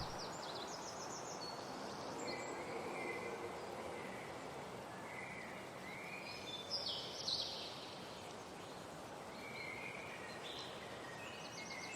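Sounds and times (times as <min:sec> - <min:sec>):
steady soft hiss: 0:00.0 - 0:00.3.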